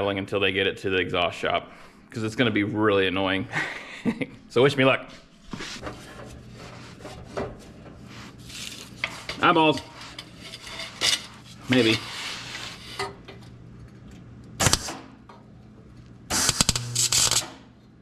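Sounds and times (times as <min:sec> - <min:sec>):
steady low hum: 0:00.0 - 0:18.0
welding arc crackle: 0:14.6 - 0:15.0, 0:16.3 - 0:17.7.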